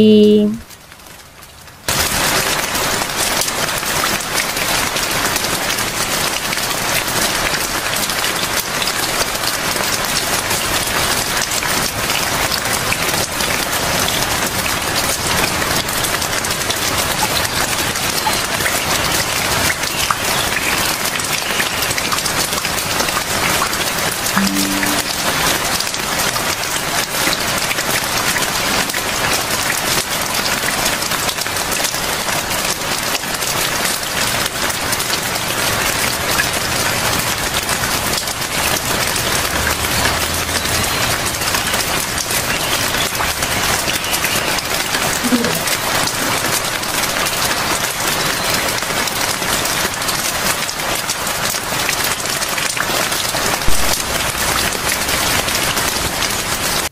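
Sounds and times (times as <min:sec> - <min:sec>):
steady rain hiss: 0:00.3 - 0:56.9
brief low thump: 0:53.7 - 0:54.0.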